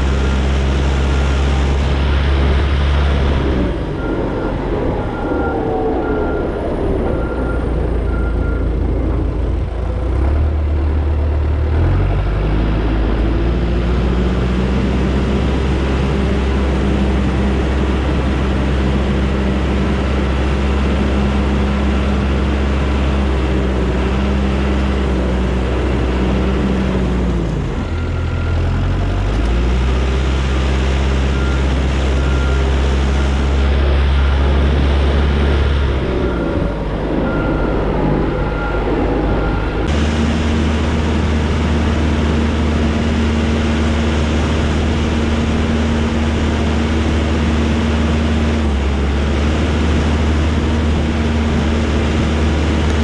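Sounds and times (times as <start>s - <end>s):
diesel engine working under load: 0.0s - 53.0s
reverse backup alarm beeping: 0.1s - 9.0s, 36.0s - 40.2s.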